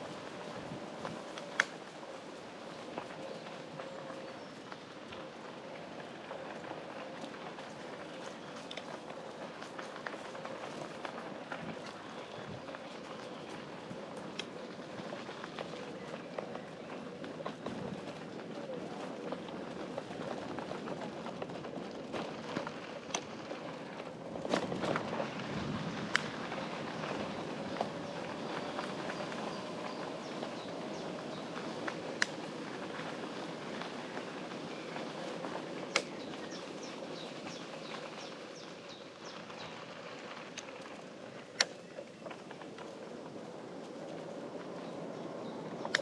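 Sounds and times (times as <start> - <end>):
bicycle tyres rolling: 0.0 - 46.0
bicycle clicks and ticks: 2.9 - 18.3, 26.0 - 46.0.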